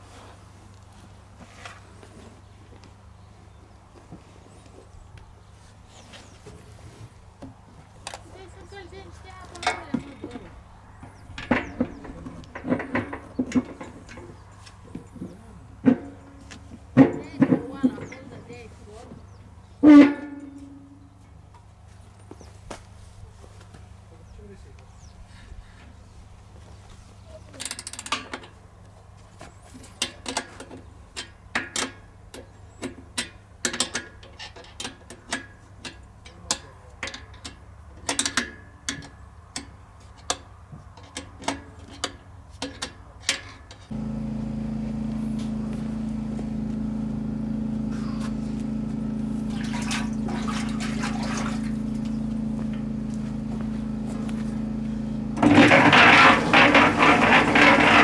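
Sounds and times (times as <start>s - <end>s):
electric motor humming: 43.9s - 58.0s.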